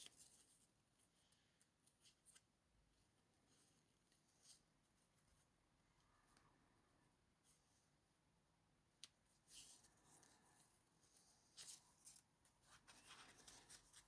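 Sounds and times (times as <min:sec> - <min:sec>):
paper rustling: 0:09.5 - 0:14.0.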